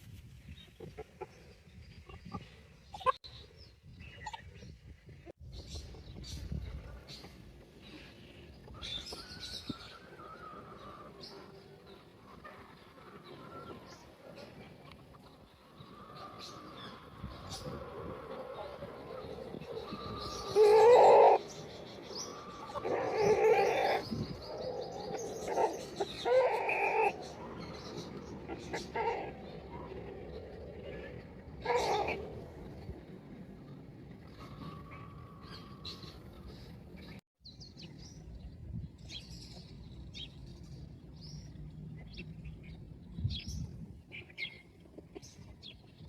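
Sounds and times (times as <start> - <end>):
birds chirping: 5.5 - 46.0
chickens calling: 8.6 - 32.9.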